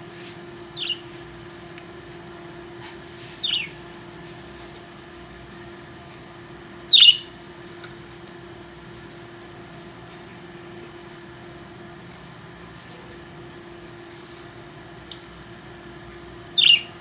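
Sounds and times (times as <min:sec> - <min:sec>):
parrot chirping: 0:00.8 - 0:01.1, 0:03.4 - 0:03.8, 0:06.9 - 0:07.4, 0:16.5 - 0:17.0.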